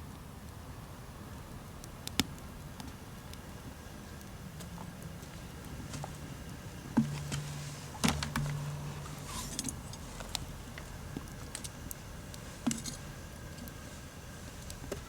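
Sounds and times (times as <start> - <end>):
low steady hum: 0.0 - 15.0
light metallic rattle: 7.0 - 10.9.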